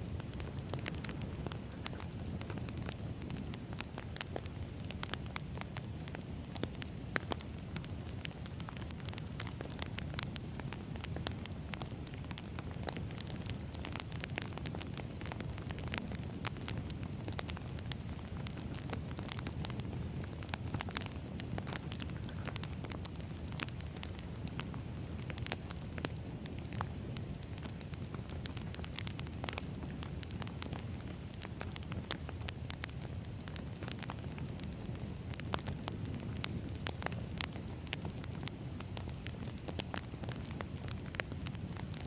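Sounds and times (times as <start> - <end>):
flames rumbling: 0.0 - 42.0
logs crackling and popping: 0.0 - 42.0.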